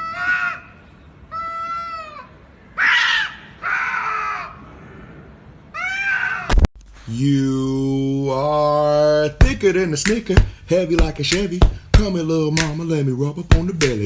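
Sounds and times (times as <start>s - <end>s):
cat meowing loudly: 5.7s - 6.5s
sharp click: 6.5s - 7.0s.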